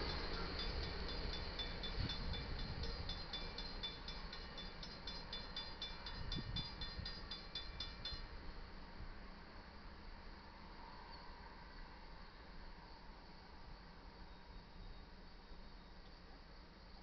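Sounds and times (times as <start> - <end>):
high ringing ticking: 0.0 - 8.3
freight train rumble: 0.0 - 17.0.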